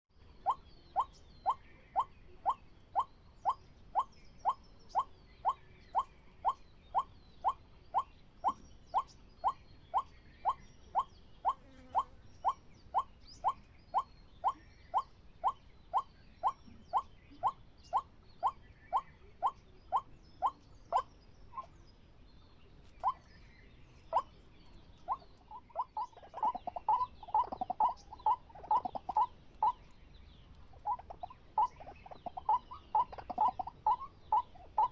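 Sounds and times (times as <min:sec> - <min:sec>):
waterhen calling: 0:25.0 - 0:29.8, 0:30.7 - 0:34.9.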